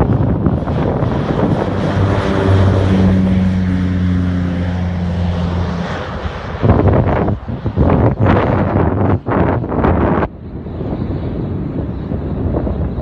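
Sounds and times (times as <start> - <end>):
aircraft engine noise: 0.0 - 13.0
propeller hum: 0.0 - 13.0
wind buffeting microphone: 0.0 - 13.0.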